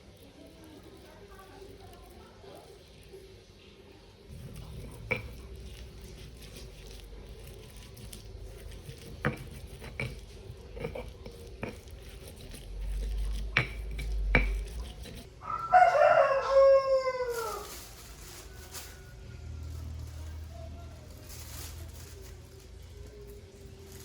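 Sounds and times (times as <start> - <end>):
rooster crowing: 15.3 - 19.9.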